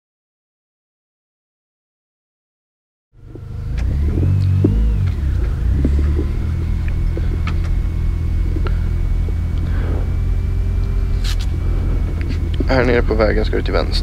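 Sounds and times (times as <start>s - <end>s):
car engine rumbling: 3.2s - 14.0s.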